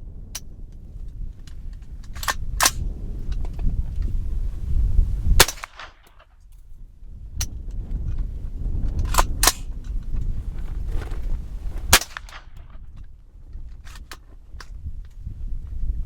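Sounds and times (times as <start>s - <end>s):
rifle action clicks: 1.5s - 4.1s, 5.4s - 6.7s, 8.9s - 10.3s, 11.9s - 12.9s
rifle shots cracking: 2.2s - 2.8s, 5.4s - 6.3s, 9.1s - 9.7s, 11.9s - 12.8s.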